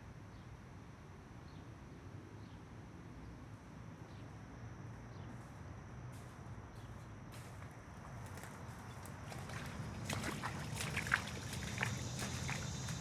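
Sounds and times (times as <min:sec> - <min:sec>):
insects droning: 0:03.8 - 0:13.0
faint insect chirps: 0:06.7 - 0:13.0.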